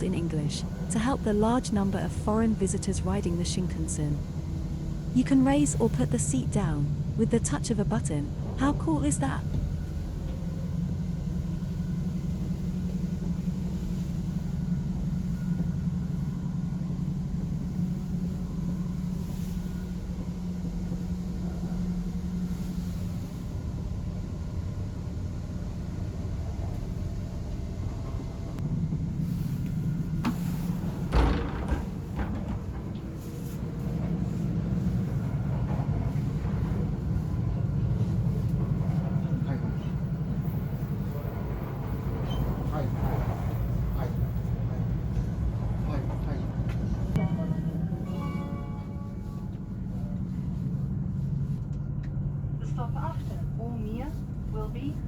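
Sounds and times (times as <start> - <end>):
train rumble inside carriage: 0.0 - 55.0.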